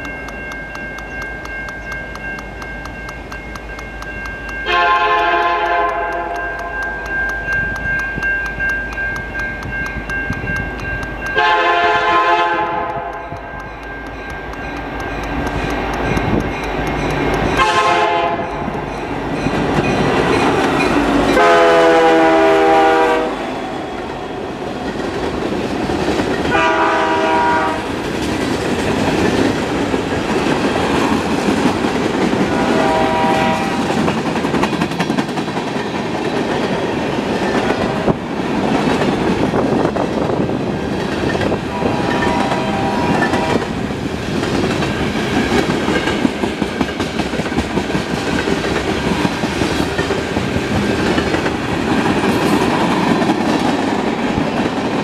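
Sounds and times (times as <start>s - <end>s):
freight train rumble and wheel clatter: 0.0s - 55.0s
locomotive air horn blasts: 4.7s - 6.4s, 11.4s - 13.4s, 17.6s - 18.5s, 21.4s - 23.5s, 26.5s - 27.9s, 32.5s - 33.9s, 41.7s - 43.7s.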